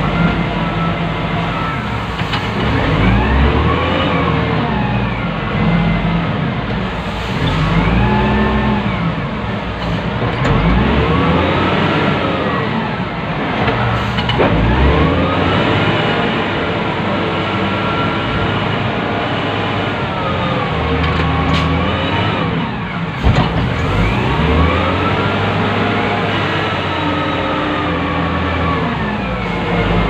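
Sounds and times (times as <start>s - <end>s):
diesel engine revving: 0.0s - 30.0s.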